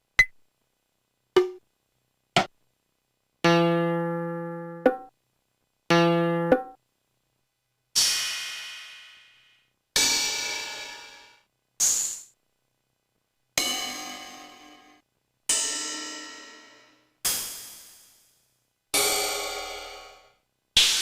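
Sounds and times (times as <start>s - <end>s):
drum machine cymbal hits: 10.0s - 12.4s, 17.3s - 18.4s.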